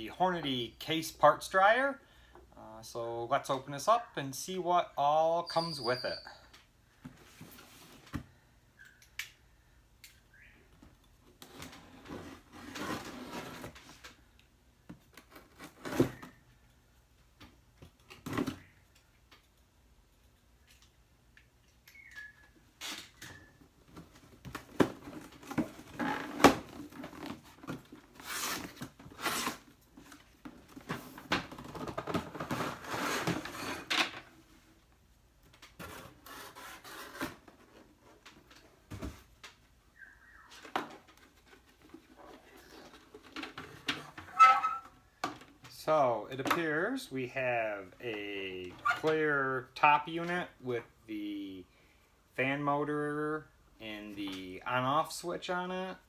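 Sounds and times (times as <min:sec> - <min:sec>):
cardboard tearing and rustling: 0:11.7 - 0:14.0, 0:24.4 - 0:29.8, 0:31.8 - 0:33.9.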